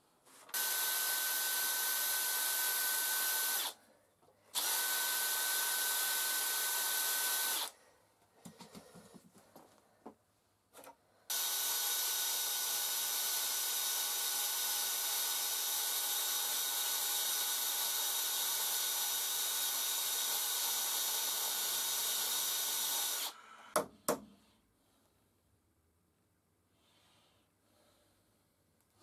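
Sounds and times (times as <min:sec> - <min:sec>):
electric power tool running: 0:00.5 - 0:03.8, 0:04.6 - 0:07.7, 0:11.3 - 0:23.4.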